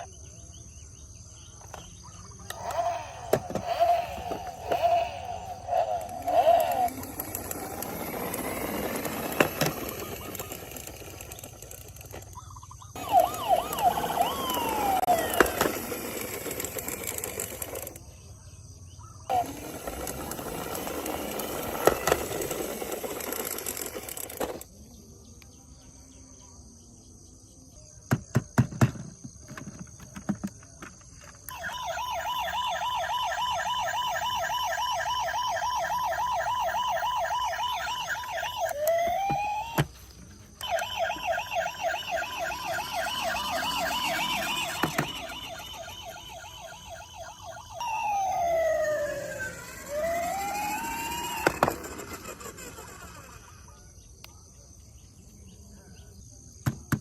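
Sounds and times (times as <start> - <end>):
toy siren warbling: 2.4 - 18.0, 19.3 - 24.7, 31.5 - 53.7.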